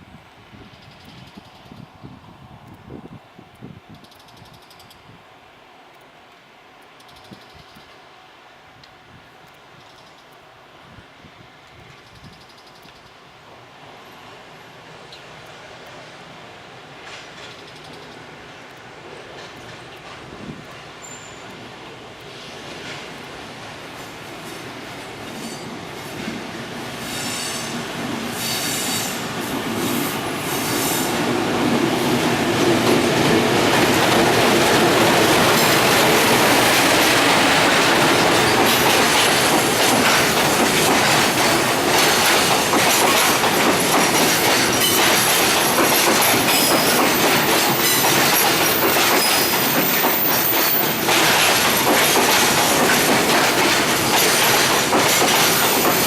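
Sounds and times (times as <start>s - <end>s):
freight train rumbling past: 13.5s - 56.0s
wheels squealing on rail: 19.8s - 21.6s, 24.0s - 26.1s, 26.9s - 31.4s, 33.8s - 56.0s.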